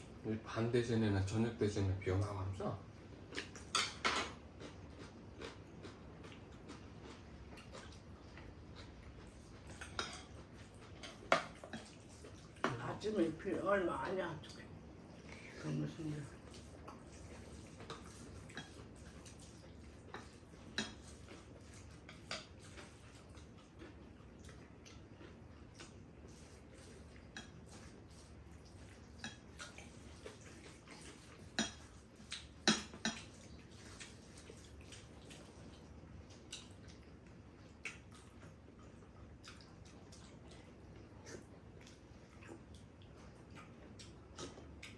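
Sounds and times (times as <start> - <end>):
spoons clinking against dishes: 9.7 - 10.4, 31.5 - 31.9, 32.6 - 33.4.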